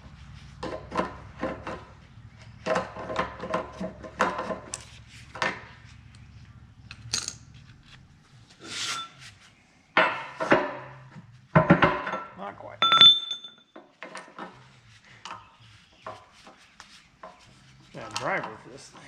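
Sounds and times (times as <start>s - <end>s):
reamer scraping steel: 8.6s - 9.3s.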